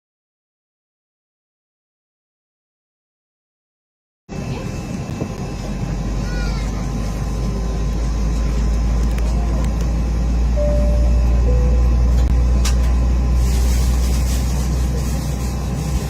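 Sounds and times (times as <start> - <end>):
airliner cabin drone: 4.3 - 16.0
short tones: 10.6 - 12.3.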